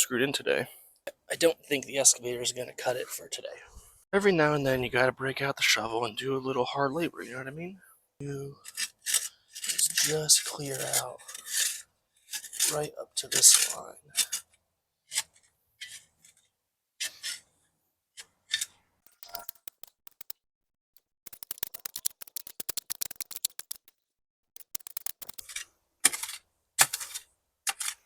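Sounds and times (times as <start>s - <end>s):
shovel digging in dirt: 19.1s - 20.3s, 21.3s - 23.9s.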